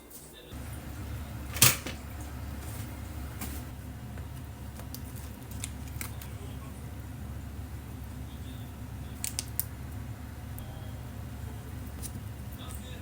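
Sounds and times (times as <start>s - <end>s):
steady low hum: 0.5s - 13.0s
light clicks: 9.1s - 10.7s.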